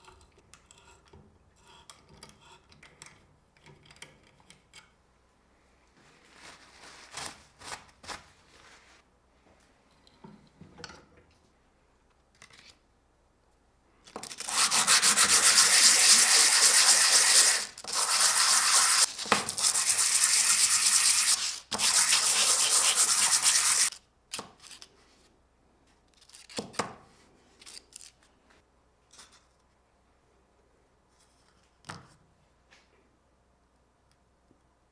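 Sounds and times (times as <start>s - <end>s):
abrasive rubbing: 14.4s - 23.9s.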